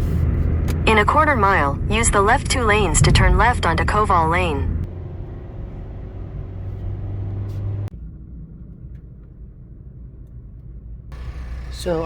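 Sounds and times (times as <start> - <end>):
low rumble: 0.0 - 5.0, 7.8 - 12.0
road noise: 0.0 - 8.3, 11.2 - 12.0
car engine hum: 0.0 - 9.1, 11.1 - 12.0.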